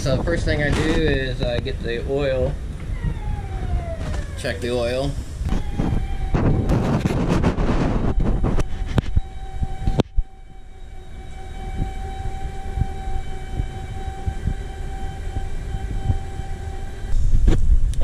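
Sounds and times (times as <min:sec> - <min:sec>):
diesel engine droning: 0:00.0 - 0:17.5
constant engine whine: 0:00.0 - 0:18.0.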